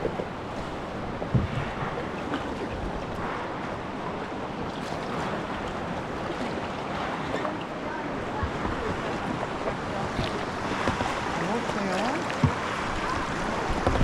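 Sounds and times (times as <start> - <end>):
river water rushing and splashing: 0.0 - 14.0
wind on microphone: 4.6 - 14.0.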